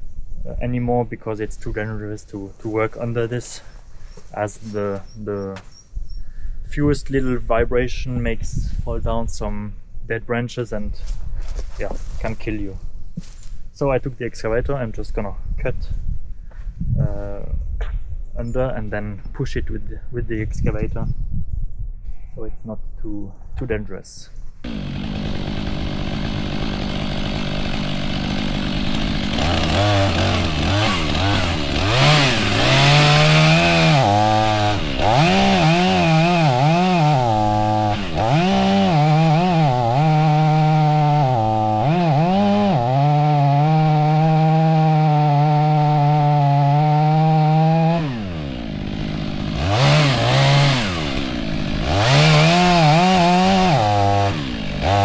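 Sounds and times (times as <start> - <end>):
chainsaw cutting into tree: 2.6 - 5.8, 24.6 - 55.0
chainsaw revving: 24.6 - 55.0.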